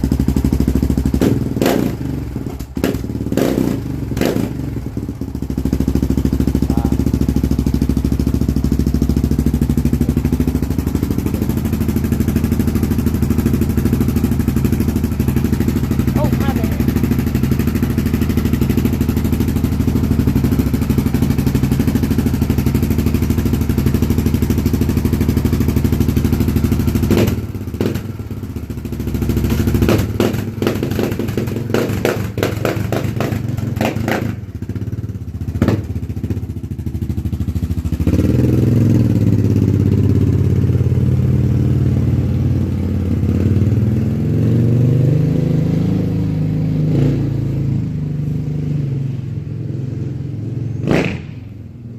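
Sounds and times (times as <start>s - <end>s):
atv engine idling and revving: 0.0s - 51.9s.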